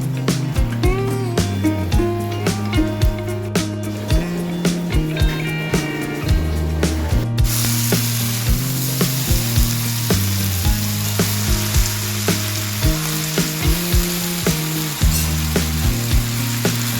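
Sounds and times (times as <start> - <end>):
background music with beat: 0.0 - 16.9
food sizzling in a pan: 7.5 - 16.9.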